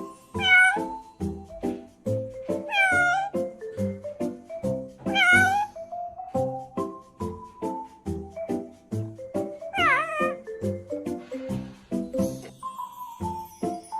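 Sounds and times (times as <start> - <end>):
cat meowing: 0.3 - 1.0, 2.6 - 3.4, 5.0 - 5.7, 9.7 - 10.4.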